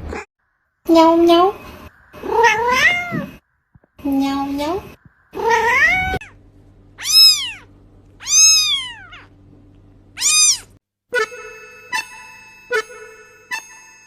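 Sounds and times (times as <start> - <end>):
cat meowing: 2.2 - 3.4, 5.4 - 6.4, 7.0 - 9.3, 10.2 - 10.7
plinking keyboard music: 11.1 - 14.0.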